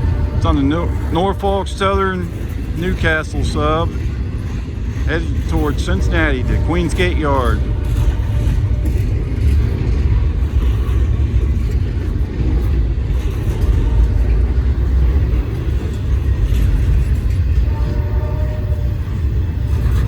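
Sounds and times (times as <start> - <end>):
freight train rumbling past: 0.0 - 20.0.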